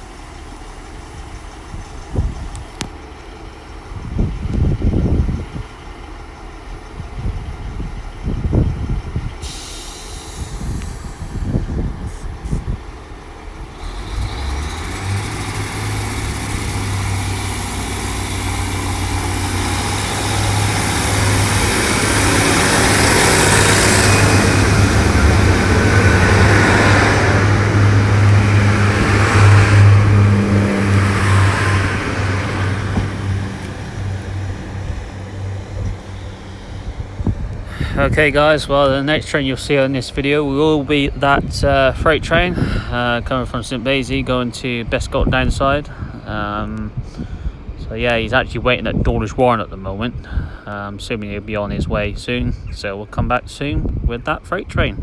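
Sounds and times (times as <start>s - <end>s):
train engine drone: 0.0s - 49.0s
wheel and rail noise: 0.0s - 50.2s
wind thumping on microphone: 3.9s - 5.7s, 7.0s - 13.0s, 15.9s - 39.0s.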